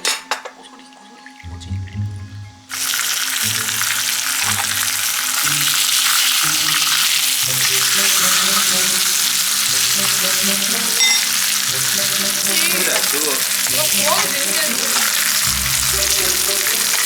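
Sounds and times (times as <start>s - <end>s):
food sizzling in hot oil: 2.7s - 17.0s.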